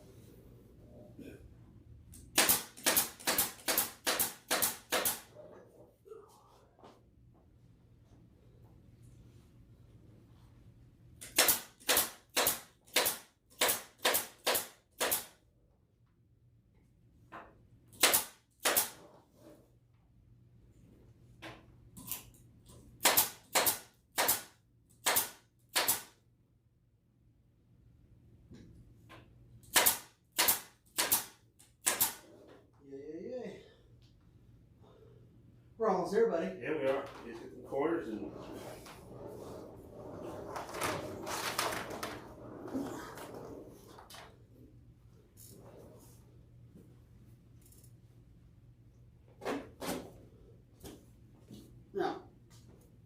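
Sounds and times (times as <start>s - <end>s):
staple gun firing: 2.3s - 5.2s, 23.0s - 26.1s, 29.7s - 32.2s.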